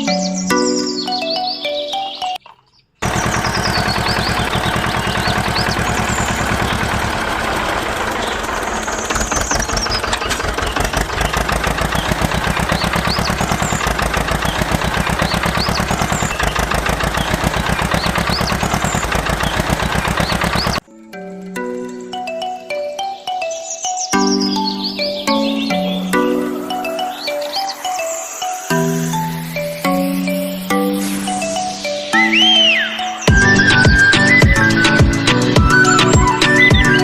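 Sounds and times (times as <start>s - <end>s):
small engine knocking: 3.0s - 20.9s, 33.3s - 37.0s.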